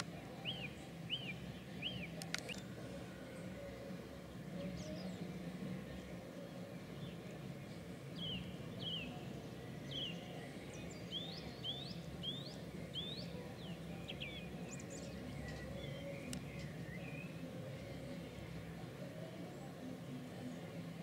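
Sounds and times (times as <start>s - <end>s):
bird chirping: 0.0s - 3.8s, 5.9s - 18.5s
low background hum: 0.0s - 21.0s.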